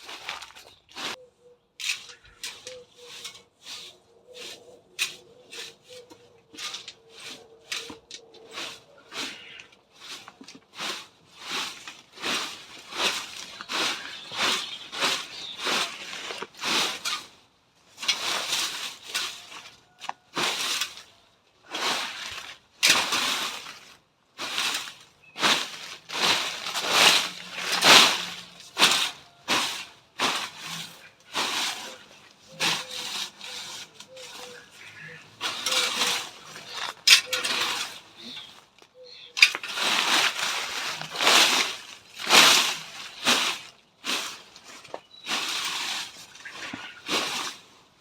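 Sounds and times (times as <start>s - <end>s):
rustling scraping of plant material: 0.0s - 48.0s.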